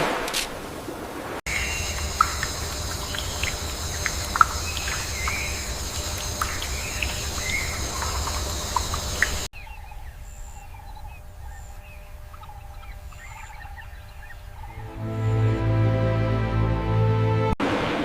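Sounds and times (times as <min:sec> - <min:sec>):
high-pitched insect drone: 0:01.5 - 0:09.5
bird chirps and calls: 0:01.5 - 0:14.8.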